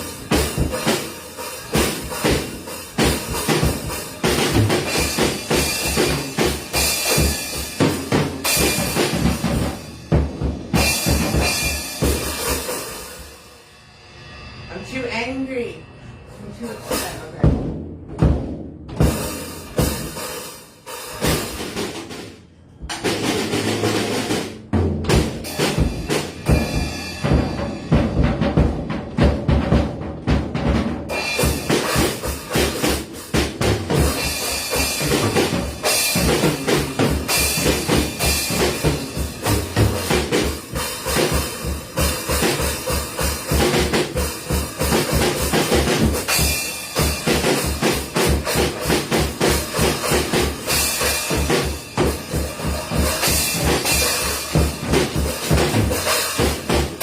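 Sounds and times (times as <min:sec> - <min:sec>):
rapid kick drum: 0:00.0 - 0:12.9, 0:22.9 - 0:57.0
cymbals crashing: 0:10.8 - 0:17.5.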